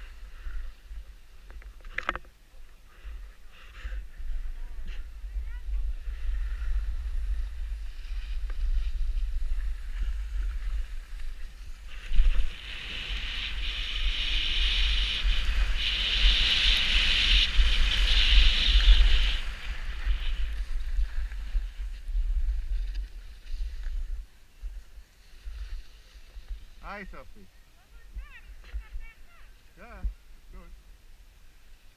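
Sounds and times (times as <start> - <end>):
wind rumbling on microphone: 0.0 - 27.1
sliding over snow: 2.7 - 27.0.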